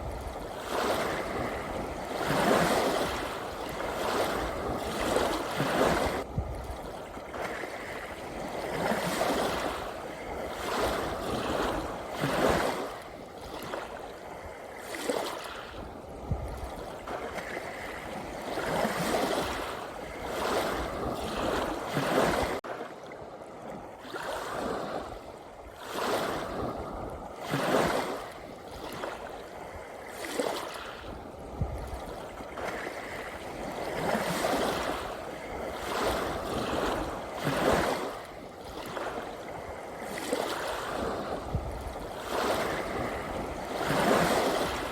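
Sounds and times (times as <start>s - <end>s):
sea waves washing in: 0.0s - 44.9s.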